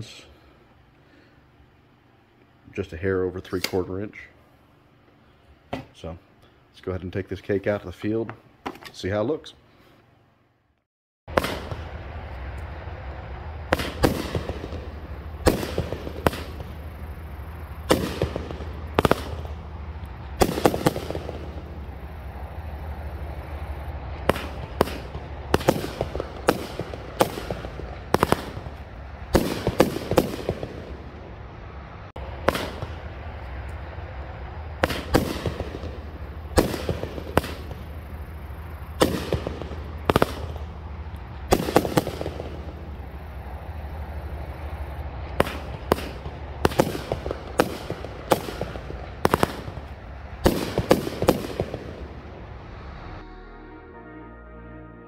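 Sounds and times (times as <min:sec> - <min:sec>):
firework shots: 0:11.3 - 0:12.8, 0:13.5 - 0:53.2
crackling firework bursts: 0:11.3 - 0:53.3.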